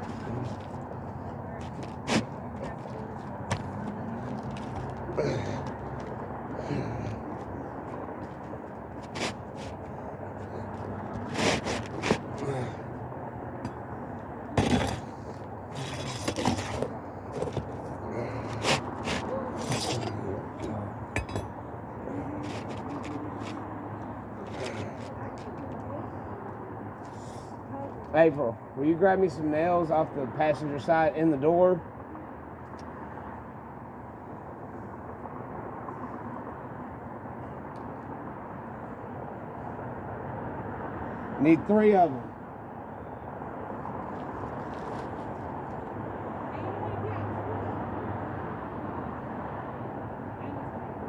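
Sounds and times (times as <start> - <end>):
hand work on shingle roof: 0.0 - 12.9, 14.5 - 21.6, 22.2 - 23.7
steady low hum: 0.0 - 50.8
outdoor background rumble: 0.0 - 51.0.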